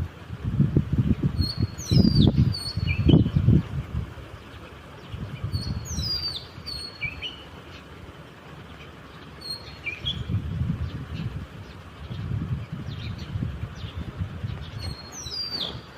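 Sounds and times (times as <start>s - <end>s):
low rumbling noise: 0.0s - 15.9s
small birds chirping: 0.8s - 15.9s.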